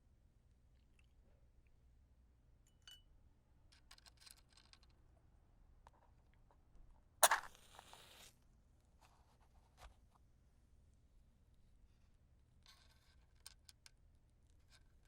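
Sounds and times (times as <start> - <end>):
matchbox rattling: 7.2 - 8.3
match striking and flaring: 7.2 - 8.4.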